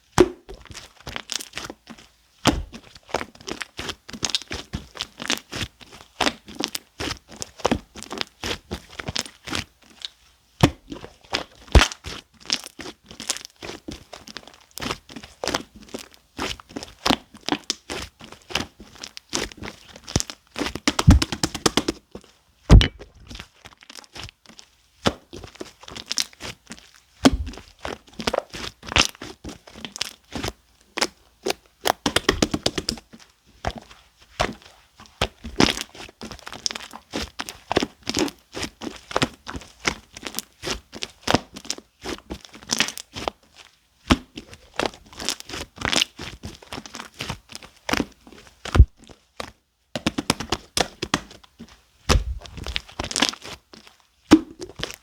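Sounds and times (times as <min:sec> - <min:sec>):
loud thuds: 0:22.7 - 0:23.2
slime squished by hand: 0:27.3 - 0:27.7, 0:52.1 - 0:53.3.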